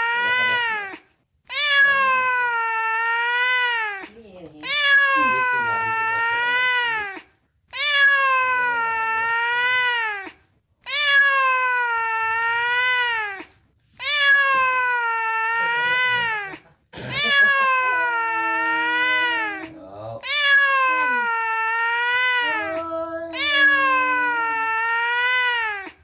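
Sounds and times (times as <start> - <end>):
cat meowing: 0.0 - 26.0.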